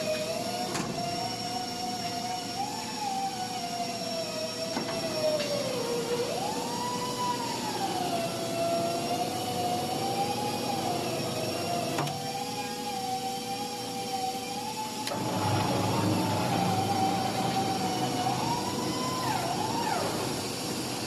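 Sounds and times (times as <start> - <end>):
background mechanical noise: 0.0 - 21.0
machine motor whining: 0.0 - 21.0.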